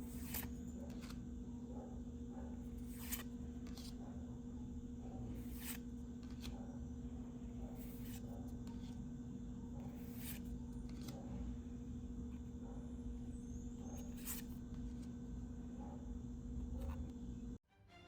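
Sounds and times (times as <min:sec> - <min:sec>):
cards sliding: 0:00.0 - 0:01.3, 0:02.8 - 0:04.0, 0:05.4 - 0:06.6, 0:07.8 - 0:09.0, 0:09.9 - 0:11.4, 0:13.4 - 0:15.2
low electrical hum: 0:00.0 - 0:17.6.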